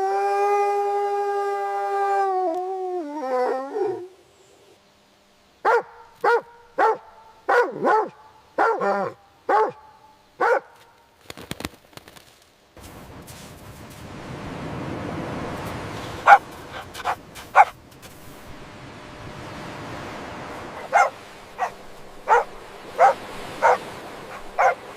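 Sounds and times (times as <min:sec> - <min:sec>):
dog howling: 0:00.0 - 0:04.1
steady hiss: 0:01.0 - 0:24.9
dog barking sharply: 0:05.6 - 0:08.9, 0:09.5 - 0:09.8, 0:10.4 - 0:10.8, 0:16.2 - 0:17.8, 0:20.8 - 0:24.8.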